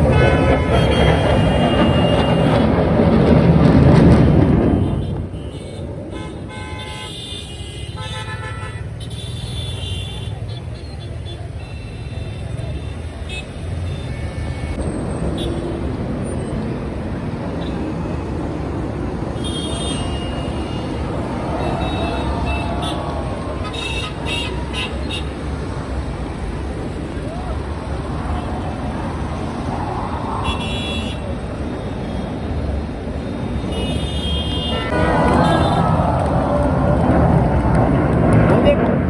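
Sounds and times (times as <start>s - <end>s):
car horn toots: 0.0s - 2.8s, 33.6s - 36.2s
loud rushing rumble: 0.0s - 6.5s, 14.8s - 33.8s, 34.8s - 39.0s
hum of vehicles: 0.0s - 39.0s.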